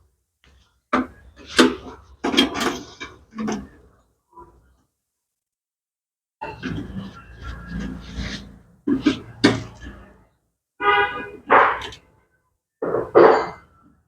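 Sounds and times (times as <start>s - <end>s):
knocks and clatters of parts: 0.9s - 3.7s.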